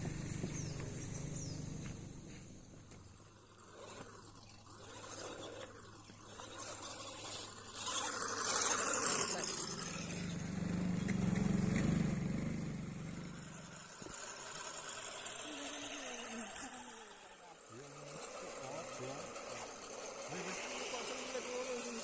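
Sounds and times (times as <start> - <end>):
motor humming: 0.0 - 22.0.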